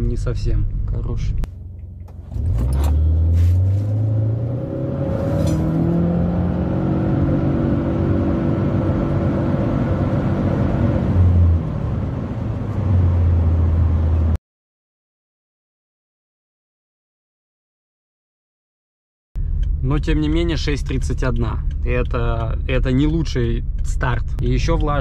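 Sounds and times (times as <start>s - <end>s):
car engine at full throttle: 1.4s - 14.4s.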